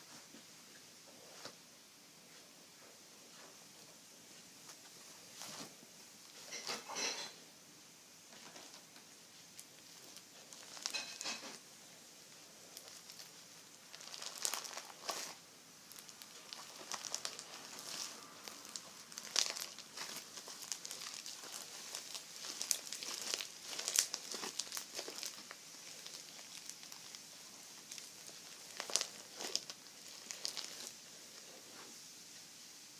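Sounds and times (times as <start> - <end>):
slime crackling and popping: 9.5 - 11.6, 12.4 - 31.5.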